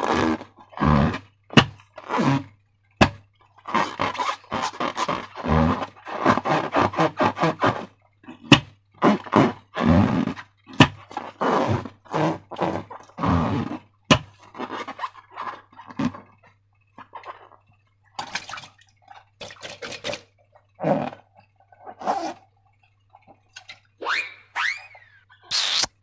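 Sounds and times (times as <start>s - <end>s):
slime squelching: 14.2s - 19.4s.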